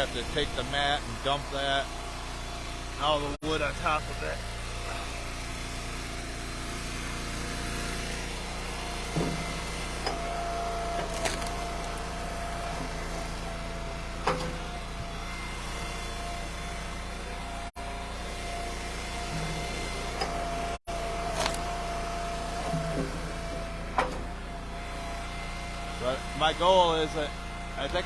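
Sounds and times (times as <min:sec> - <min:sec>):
log splitter engine running: 0:00.0 - 0:28.0
wood splitting cracks: 0:11.0 - 0:12.1, 0:21.4 - 0:21.6.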